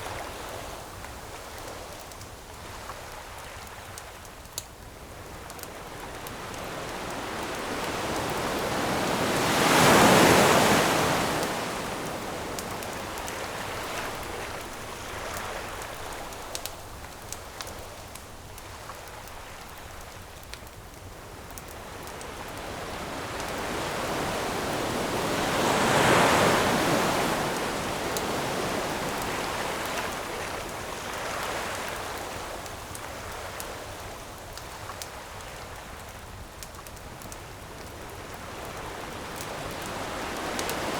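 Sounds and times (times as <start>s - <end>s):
campfire crackling: 0.0s - 40.9s
ocean waves breaking: 5.8s - 17.8s, 21.8s - 32.6s, 38.3s - 40.9s.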